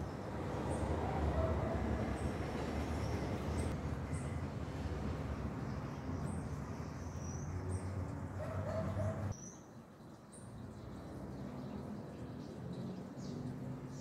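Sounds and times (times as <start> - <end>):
small birds chirping: 5.7 - 14.0.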